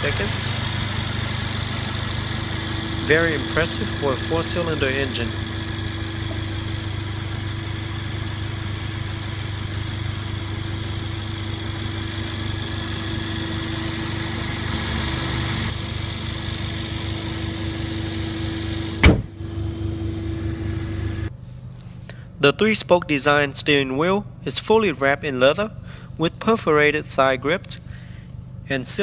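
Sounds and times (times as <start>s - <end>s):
car engine idling: 0.0s - 21.4s
car hood slamming shut: 19.0s - 19.4s.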